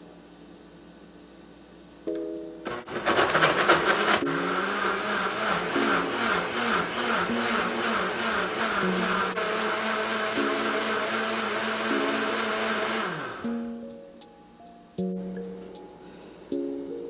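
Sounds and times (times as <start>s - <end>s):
appliance motor whirring: 2.7s - 13.5s.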